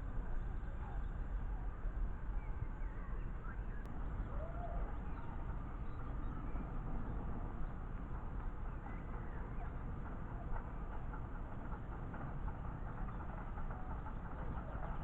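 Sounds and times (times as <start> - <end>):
miniature train rumbling: 3.9 - 15.0.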